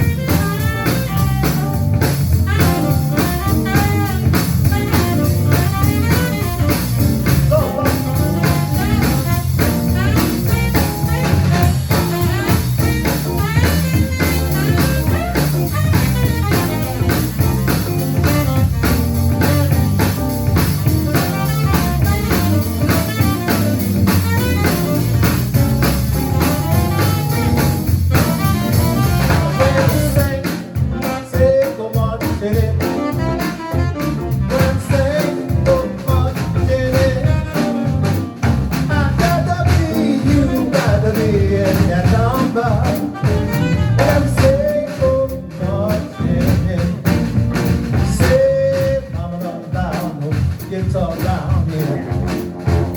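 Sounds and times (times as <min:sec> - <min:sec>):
drum kit steady beat: 0:00.0 - 0:52.9
guitar: 0:00.0 - 0:52.9
live jazz band playing: 0:00.0 - 0:52.9.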